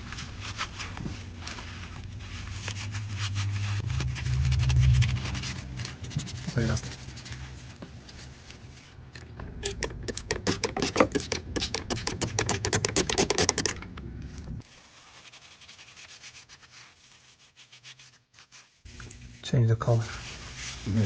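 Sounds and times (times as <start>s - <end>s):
low hum: 0.0s - 9.9s, 13.7s - 14.6s
faint scratches: 0.1s - 9.0s.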